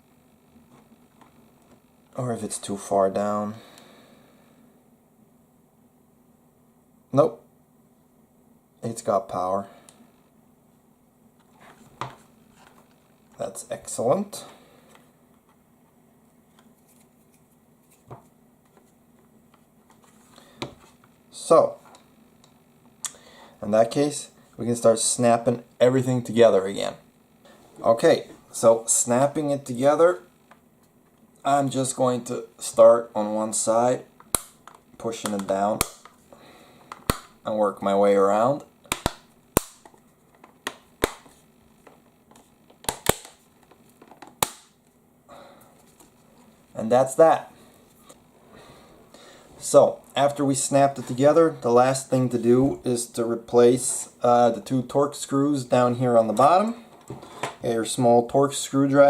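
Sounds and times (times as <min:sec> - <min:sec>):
faint steady hum: 0:00.0 - 0:59.0
plastic clips snapping into place: 0:42.8 - 0:43.4.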